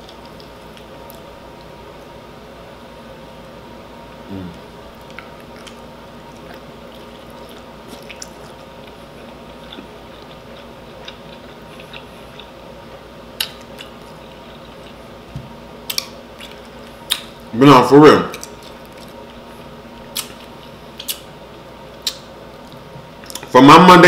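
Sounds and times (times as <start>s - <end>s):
faint steady hum: 0.0s - 24.0s
wet mouth chewing smacks: 5.0s - 12.5s, 13.4s - 15.0s, 15.9s - 17.4s, 20.1s - 21.3s, 22.0s - 23.5s.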